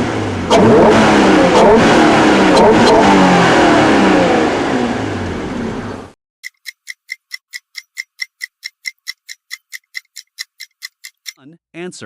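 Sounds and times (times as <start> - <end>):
car engine revving: 0.0 - 6.2
countdown timer ticking: 6.4 - 11.4.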